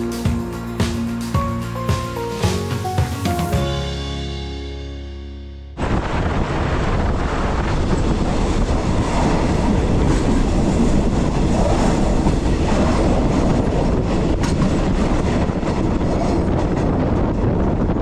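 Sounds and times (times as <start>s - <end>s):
train wheels clickety-clack: 9.1s - 18.0s.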